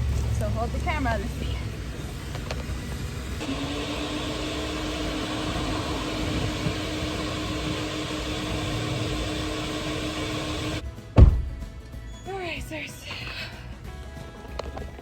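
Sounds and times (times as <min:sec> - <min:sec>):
vacuum cleaner running: 0:01.6 - 0:10.8.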